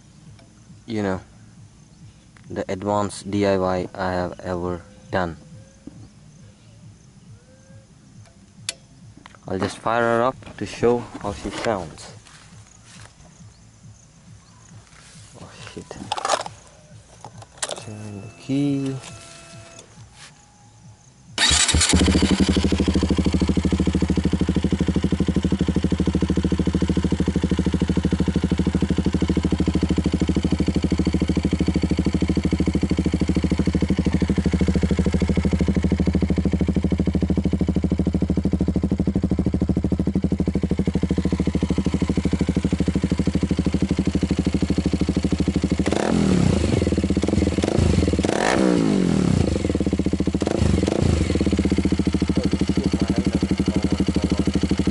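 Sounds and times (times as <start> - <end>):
motorcycle engine idling: 0.0 - 54.9
motorcycle throttle blips: 15.8 - 20.3, 21.4 - 54.9.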